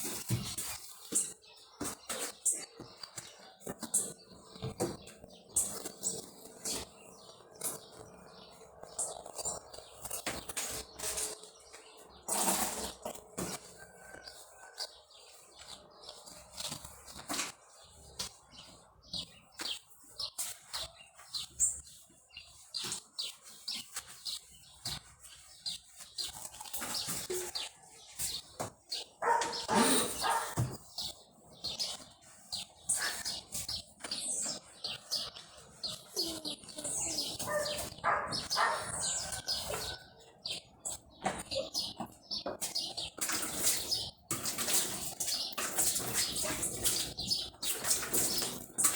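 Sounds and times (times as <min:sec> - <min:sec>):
clatter of washing a refrigerator: 0:00.0 - 0:48.9.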